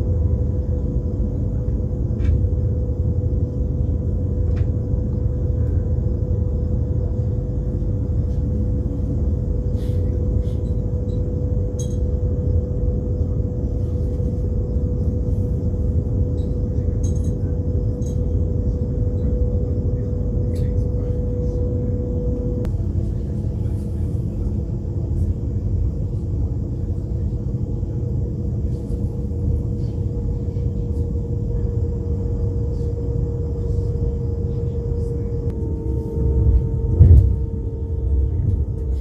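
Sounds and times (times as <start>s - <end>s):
steady hum: 0.0s - 39.0s
train wheels rumbling on rails: 28.6s - 39.0s.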